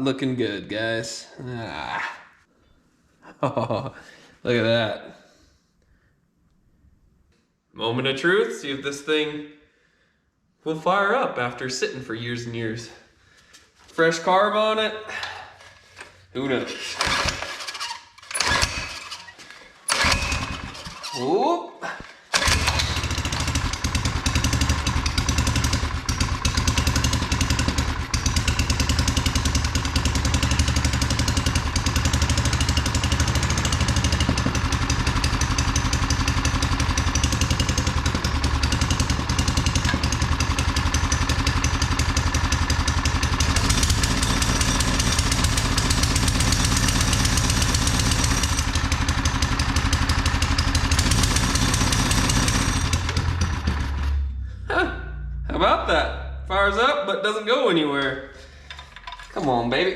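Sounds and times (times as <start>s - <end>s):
small engine running: 17.0s - 21.2s, 22.3s - 55.4s.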